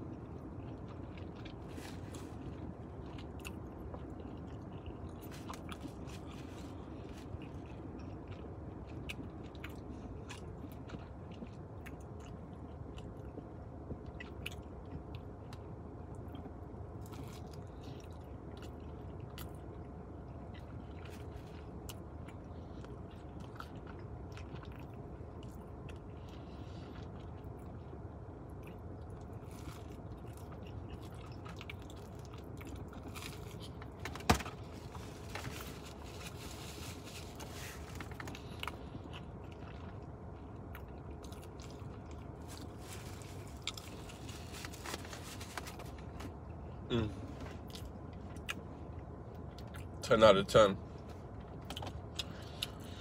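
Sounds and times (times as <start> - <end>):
pizza crust crunching: 0.4 - 12.4, 28.6 - 48.6
person chewing wet smacks: 7.2 - 15.6.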